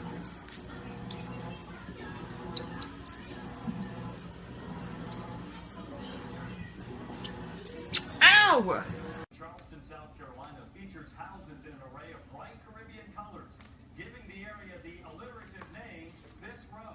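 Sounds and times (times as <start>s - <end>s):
parrot chirping and squeaking: 0.0s - 3.6s, 4.6s - 8.3s.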